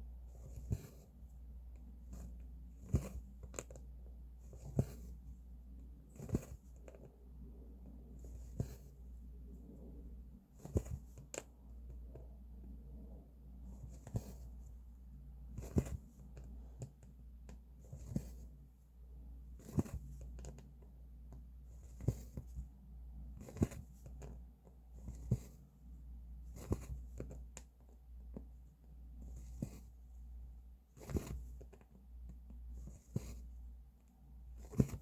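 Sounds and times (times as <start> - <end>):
needle popping through fabric: 15.5 - 16.0, 31.0 - 31.6, 34.6 - 35.0.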